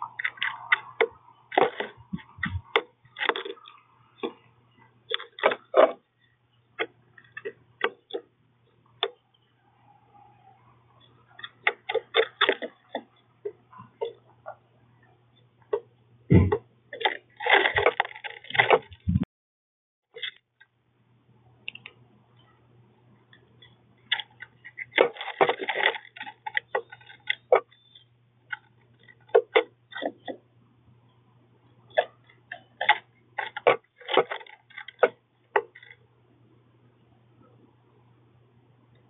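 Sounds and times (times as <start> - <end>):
birds pecking and cracking seeds: 0.0 - 9.5, 11.0 - 14.6, 17.0 - 19.0, 23.3 - 30.4, 31.9 - 36.0
faint low hum: 0.0 - 19.3, 20.2 - 39.0.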